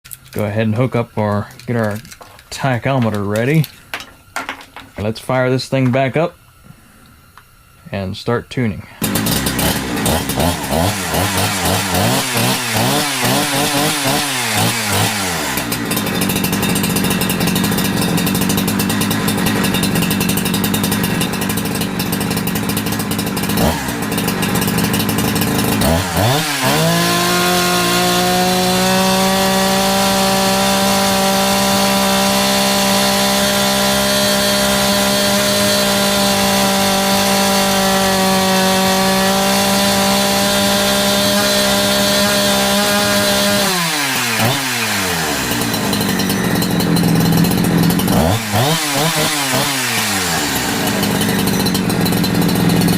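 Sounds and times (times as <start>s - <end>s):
chainsaw engine revving and idling: 9.0s - 52.9s.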